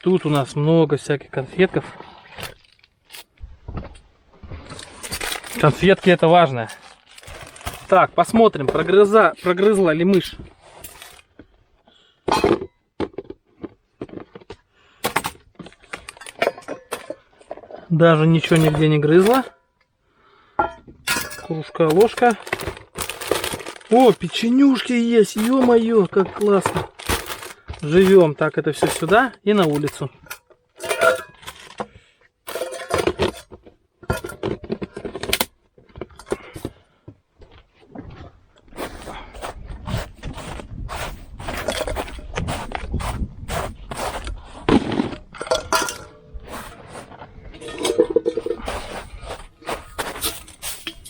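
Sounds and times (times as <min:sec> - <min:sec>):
rustling of packets: 0:01.4 - 0:03.7, 0:04.5 - 0:11.6, 0:13.1 - 0:19.5, 0:21.1 - 0:37.0, 0:38.4 - 0:51.0
crackles knocks and clinks: 0:02.3 - 0:11.4, 0:12.3 - 0:36.8, 0:43.9 - 0:51.0
packets crinkling: 0:02.4 - 0:03.4, 0:04.6 - 0:09.8, 0:21.8 - 0:30.2.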